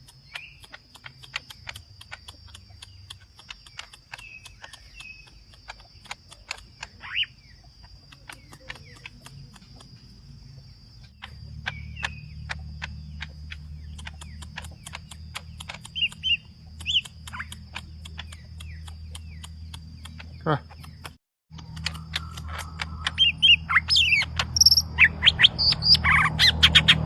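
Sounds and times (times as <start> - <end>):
bird clicking notes: 0.0 - 10.3, 11.1 - 24.9
bird whistled calls: 22.2 - 27.0.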